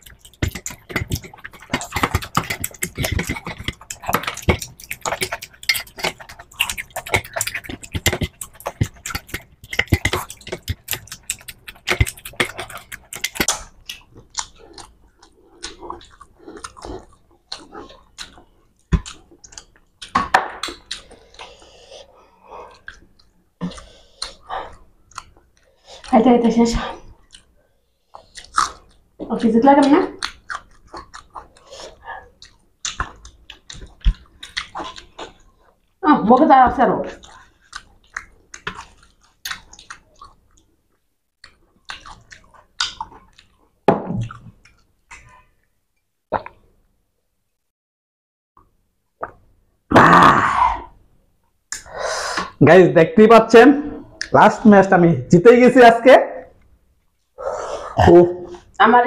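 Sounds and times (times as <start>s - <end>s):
fingers working rice on steel plates: 0.0s - 13.6s
chewing and mouth clicks: 0.0s - 36.0s, 37.0s - 45.7s, 46.3s - 46.7s.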